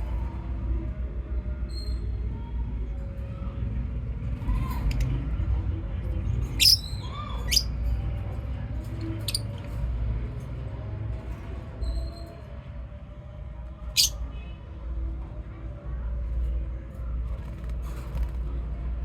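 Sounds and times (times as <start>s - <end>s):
lovebirds chirping shrilly: 6.6s - 7.7s.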